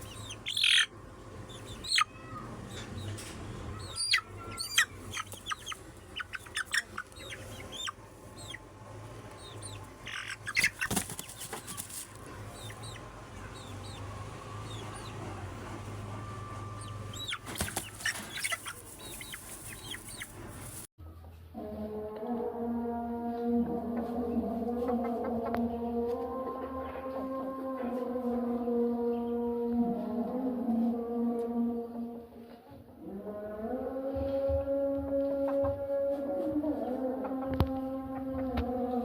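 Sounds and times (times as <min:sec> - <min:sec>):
chickens calling: 0:00.0 - 0:20.9
steady low hum: 0:00.0 - 0:20.9
wings flapping: 0:05.1 - 0:07.2, 0:10.1 - 0:12.7, 0:17.2 - 0:20.9.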